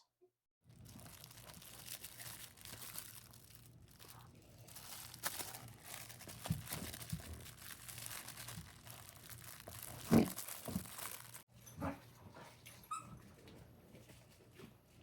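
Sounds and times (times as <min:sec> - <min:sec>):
dog toy crinkling: 0:00.7 - 0:11.5.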